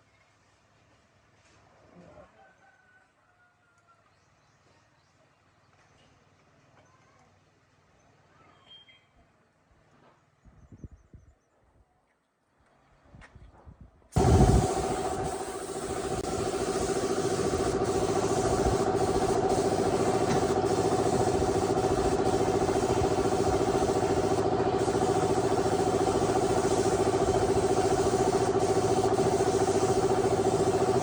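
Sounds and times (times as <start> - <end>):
motor humming: 14.2 - 31.0.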